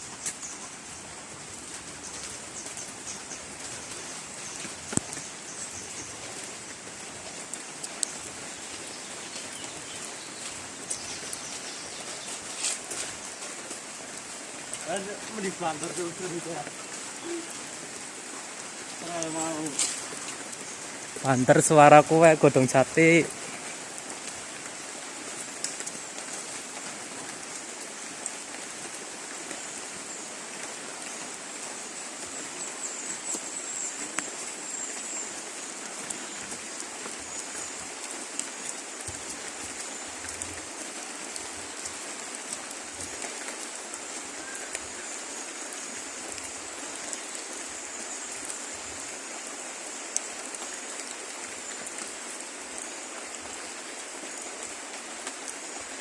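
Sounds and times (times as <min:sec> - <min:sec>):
rain falling on leaves: 0:00.0 - 0:56.0
single raindrops ticking: 0:07.4 - 0:08.4, 0:18.9 - 0:24.7.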